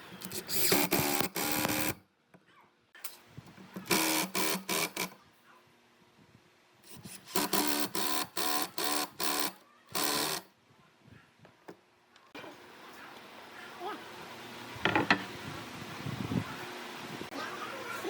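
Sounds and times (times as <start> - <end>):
power tool motor bursts: 0.2 - 2.0, 3.8 - 5.1, 6.9 - 10.5.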